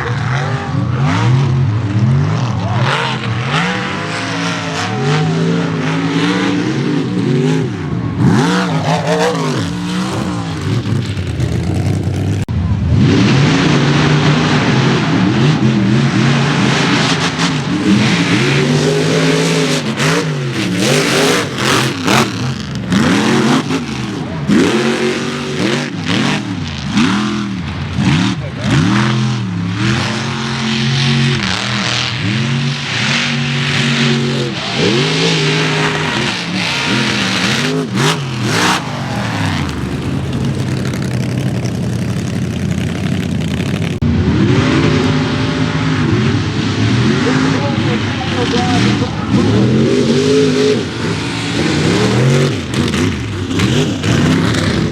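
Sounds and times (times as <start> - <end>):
truck engine revving: 0.0 - 54.9.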